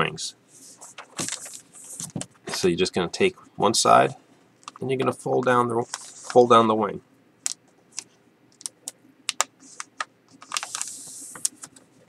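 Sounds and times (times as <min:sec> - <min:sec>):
paper rustling: 0:00.5 - 0:02.7, 0:05.8 - 0:06.5, 0:09.6 - 0:12.0
paper being folded and creased: 0:00.6 - 0:02.6, 0:05.8 - 0:06.5, 0:09.6 - 0:11.8.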